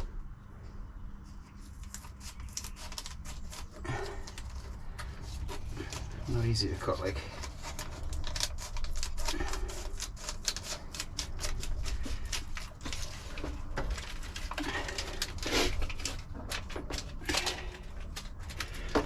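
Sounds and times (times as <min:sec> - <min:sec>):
scissors cutting stiff foil mat: 0:01.6 - 0:04.6, 0:05.4 - 0:13.1.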